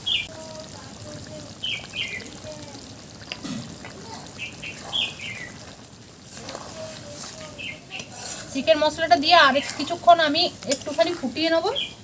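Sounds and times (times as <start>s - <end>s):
small bird chirping: 0.0s - 0.4s, 1.5s - 2.5s, 4.1s - 5.8s, 6.8s - 8.1s, 11.7s - 12.0s.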